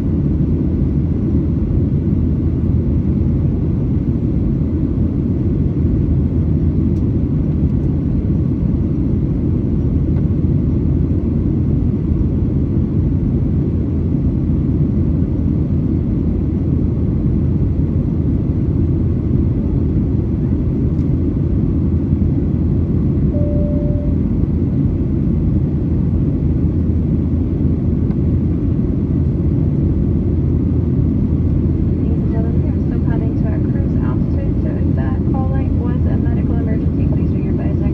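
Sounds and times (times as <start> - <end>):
airplane cabin engine rumble: 0.0 - 37.9
faint tone: 23.3 - 24.4.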